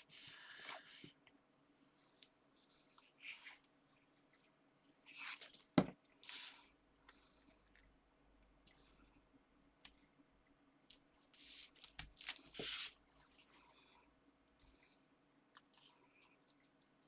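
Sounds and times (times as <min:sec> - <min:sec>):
paper sheets sliding and rustling: 0:11.4 - 0:13.0.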